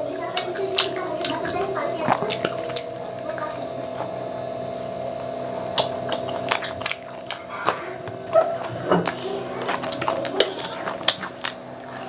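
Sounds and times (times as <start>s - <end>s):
close chewing and mouth sounds: 0.0s - 12.0s
steady hum: 0.0s - 12.0s.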